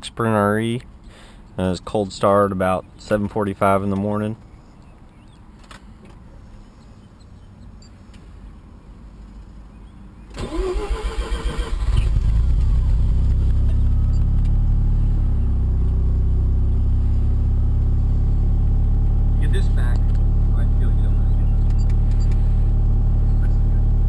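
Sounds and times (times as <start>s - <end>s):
starter motor cranking: 10.4s - 13.3s
car engine idling: 10.4s - 24.0s.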